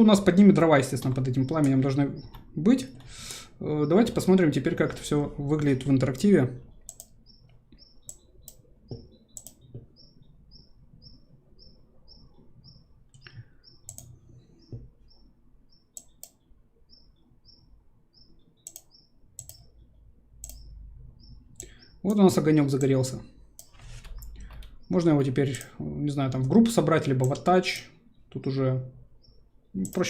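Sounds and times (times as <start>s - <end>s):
faint high chirp: 6.7s - 19.8s
computer mouse clicks: 6.8s - 10.1s, 13.1s - 14.9s, 15.9s - 16.4s, 18.6s - 19.7s, 20.4s - 20.7s, 21.5s - 22.2s, 23.6s - 24.9s, 29.8s - 30.0s.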